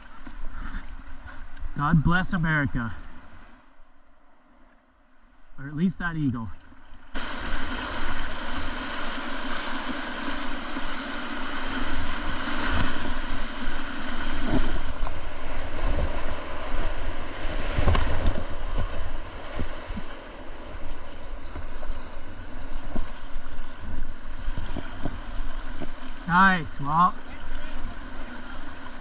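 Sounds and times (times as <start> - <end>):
paddle splashes: 6.4 - 29.0
river water rushing: 6.7 - 29.0.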